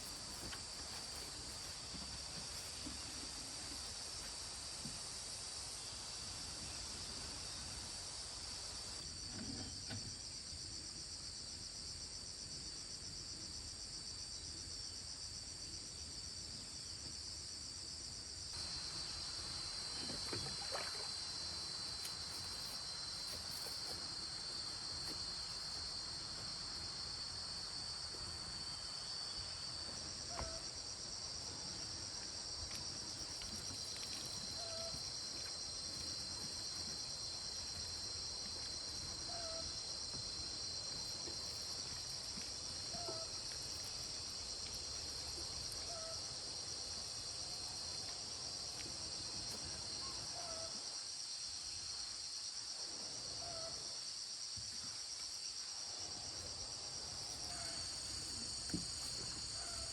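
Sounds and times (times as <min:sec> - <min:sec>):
insects trilling: 0:18.6 - 0:59.9.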